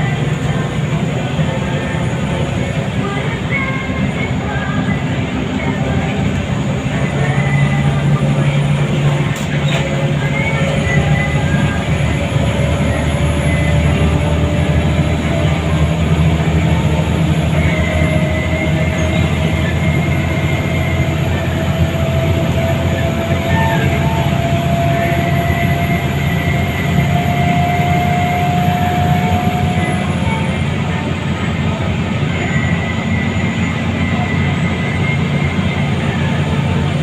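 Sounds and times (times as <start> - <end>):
bus engine and road rumble: 0.0 - 37.0
rising whine: 0.0 - 37.0.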